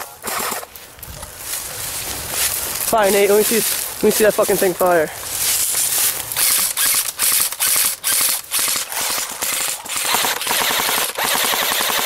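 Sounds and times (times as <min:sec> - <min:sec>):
airsoft gun bursts: 0:00.0 - 0:00.7, 0:06.4 - 0:12.0.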